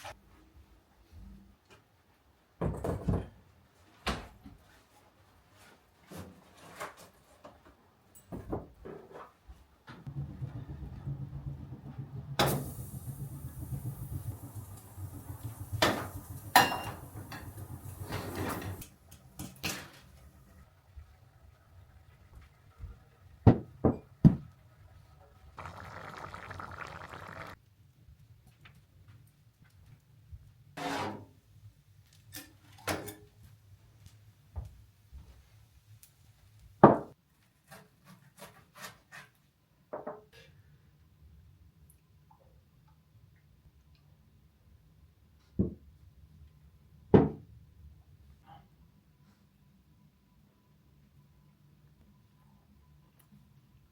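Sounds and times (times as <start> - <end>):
knocks and clatters: 10.0 - 20.1
low steady rumble: 10.1 - 18.6.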